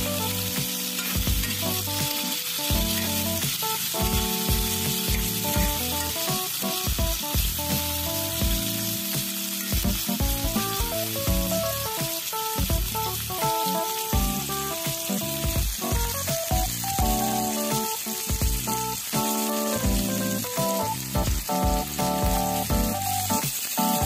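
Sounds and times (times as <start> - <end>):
background music: 0.0 - 24.0
vegetables sizzling in oil: 0.0 - 24.0
spatula stirring in wok: 0.3 - 6.7.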